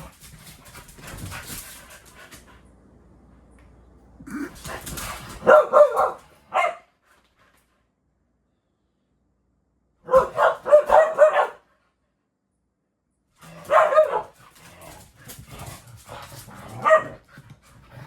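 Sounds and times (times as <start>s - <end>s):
dog barking: 5.4s - 6.9s, 10.0s - 11.7s, 13.6s - 14.4s, 16.8s - 17.2s.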